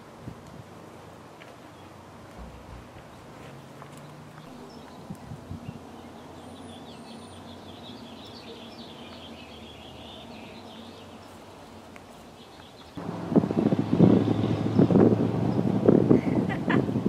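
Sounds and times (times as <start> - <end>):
low outdoor hum: 0.0 - 17.0
small birds chirping: 3.0 - 13.0, 13.6 - 16.5.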